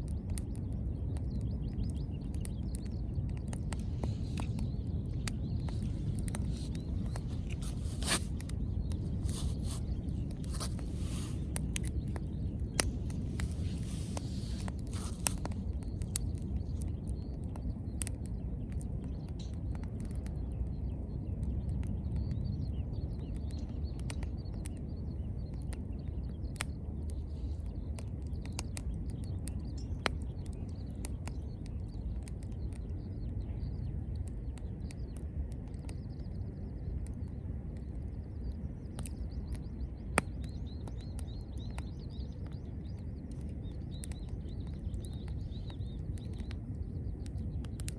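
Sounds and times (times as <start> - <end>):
wood fire crackling: 0.0 - 47.9
sharp pops: 3.4 - 17.0.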